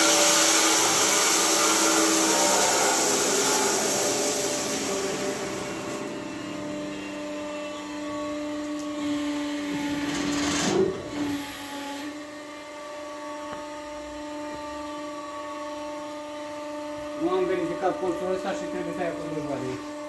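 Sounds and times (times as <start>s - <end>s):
rushing noise: 0.0s - 6.8s
sawmill machine hum with whine: 0.0s - 20.0s.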